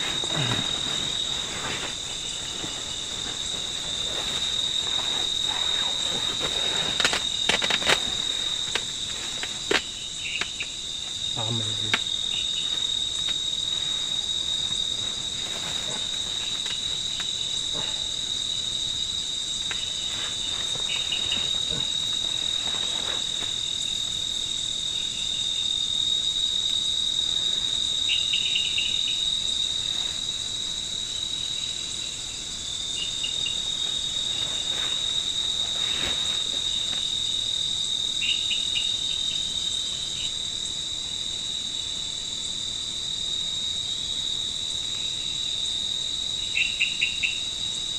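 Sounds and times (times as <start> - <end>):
insects chirping: 0.0 - 47.9
insects trilling: 0.0 - 47.9.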